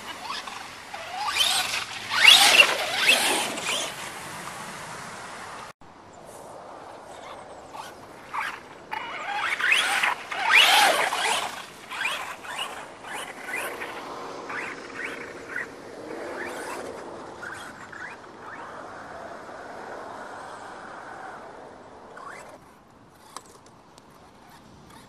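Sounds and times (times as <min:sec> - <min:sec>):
electric motor whining: 0:00.0 - 0:04.2, 0:07.8 - 0:18.8
tyres splashing through mud: 0:00.0 - 0:05.7, 0:07.8 - 0:15.7.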